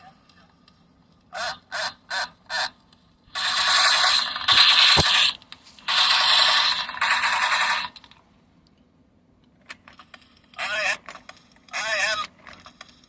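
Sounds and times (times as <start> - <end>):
toy robot mechanical voice: 10.6 - 11.1, 11.7 - 12.3.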